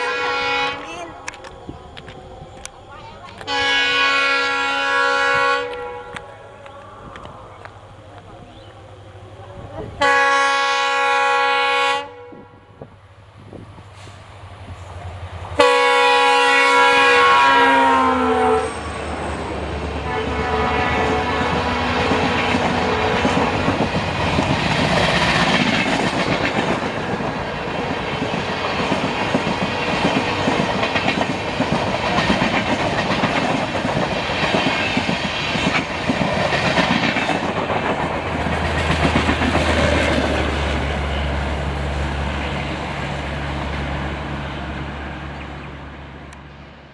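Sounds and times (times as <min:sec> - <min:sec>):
train horn: 0:00.0 - 0:01.4, 0:03.0 - 0:07.6, 0:09.8 - 0:12.9, 0:15.6 - 0:24.5
train wheel clatter on rails: 0:16.9 - 0:43.9.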